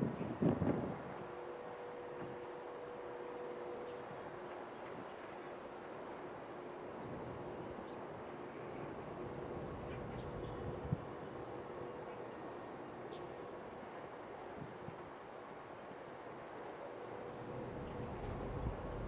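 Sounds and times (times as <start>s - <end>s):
insect trill: 0.0s - 19.0s
low rumble: 9.5s - 11.0s, 17.4s - 19.0s.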